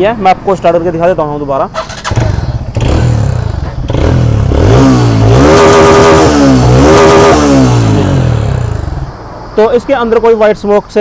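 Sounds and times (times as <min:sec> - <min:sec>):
motorcycle engine revving: 0:01.8 - 0:09.2.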